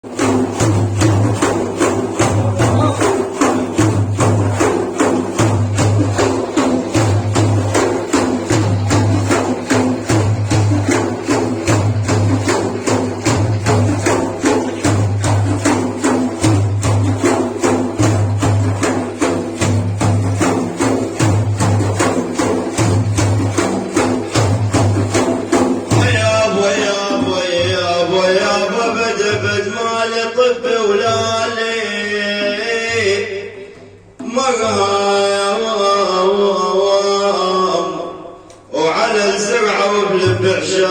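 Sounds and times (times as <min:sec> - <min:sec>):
frame drums with jingles: 0:00.0 - 0:29.5.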